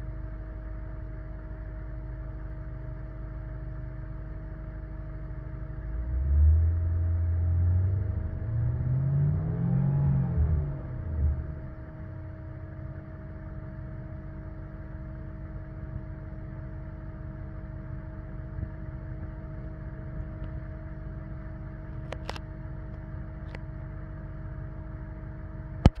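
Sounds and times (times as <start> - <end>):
engine revving and idling: 5.6 - 26.0.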